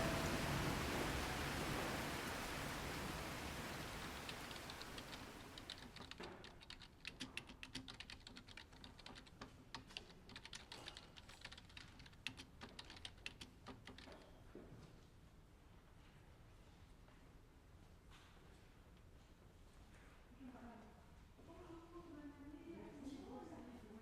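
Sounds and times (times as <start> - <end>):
soft rain hiss: 0.0 - 14.4, 15.0 - 24.0
typing on a keyboard: 4.2 - 14.4.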